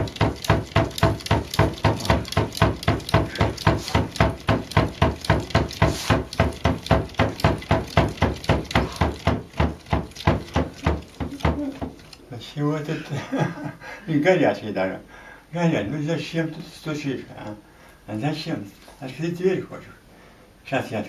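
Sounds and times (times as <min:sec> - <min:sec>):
cat knocking on cabinet door: 0:00.0 - 0:12.0.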